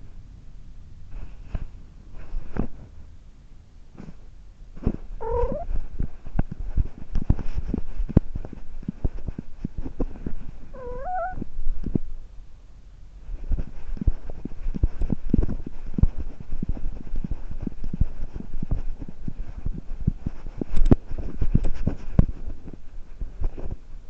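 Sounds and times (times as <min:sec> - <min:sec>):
knocks and rustles of movement: 0:01.1 - 0:03.1, 0:03.9 - 0:12.2, 0:13.2 - 0:24.0
cat meowing: 0:05.2 - 0:05.7, 0:10.8 - 0:11.4.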